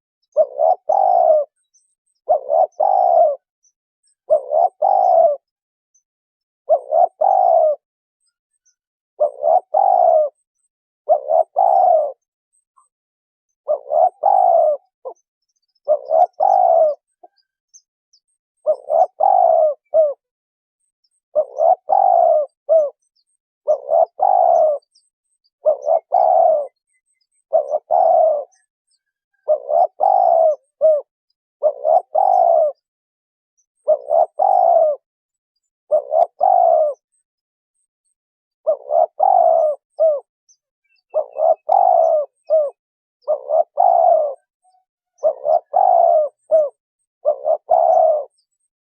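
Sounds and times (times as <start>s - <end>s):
dove cooing: 0.0s - 3.5s, 4.2s - 5.5s, 6.7s - 7.9s, 9.2s - 10.5s, 11.1s - 12.3s, 13.6s - 17.5s, 18.6s - 20.3s, 21.3s - 32.9s, 33.8s - 35.1s, 35.9s - 37.1s, 38.6s - 40.3s, 40.9s - 48.9s.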